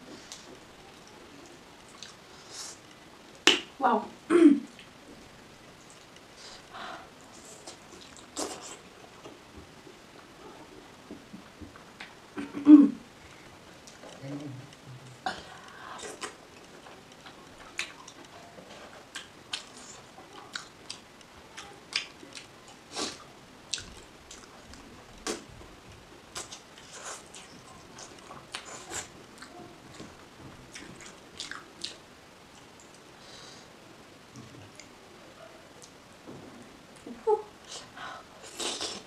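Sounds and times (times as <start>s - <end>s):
person chewing food: 1.9s - 2.2s, 15.5s - 25.5s, 26.3s - 33.0s.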